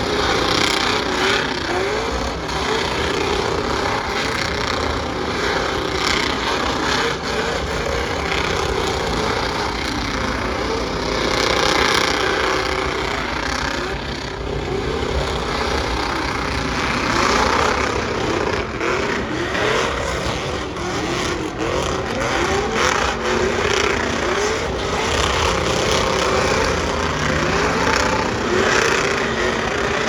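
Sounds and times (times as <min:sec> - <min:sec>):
racing engine revving: 0:00.0 - 0:30.0.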